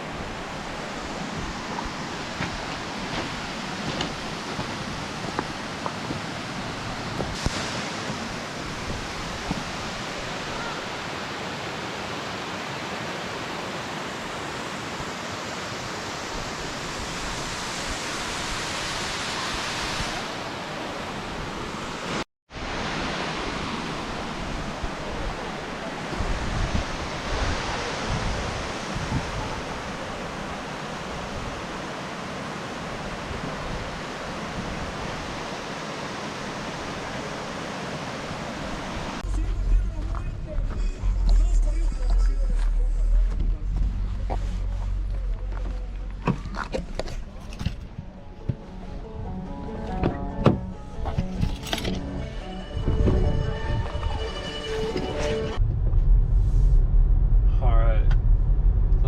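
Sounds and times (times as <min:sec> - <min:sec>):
waterfall rushing: 0:00.0 - 0:45.1
wind buffeting microphone: 0:24.4 - 0:30.2, 0:52.8 - 0:54.3.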